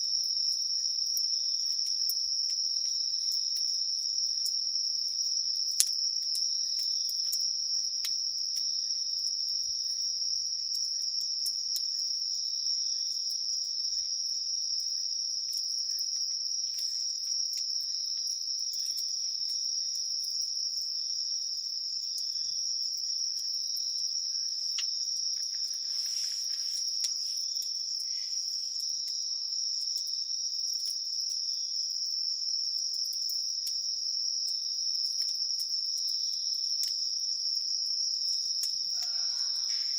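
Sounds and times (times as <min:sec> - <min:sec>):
crickets and insects chirping: 0:00.0 - 0:39.9
campfire crackles: 0:00.2 - 0:31.3.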